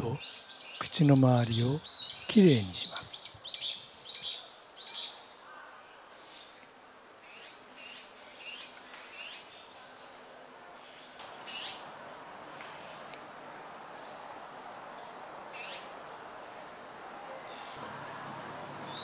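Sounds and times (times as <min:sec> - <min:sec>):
birds chirping: 0:00.0 - 0:05.4, 0:17.4 - 0:19.0.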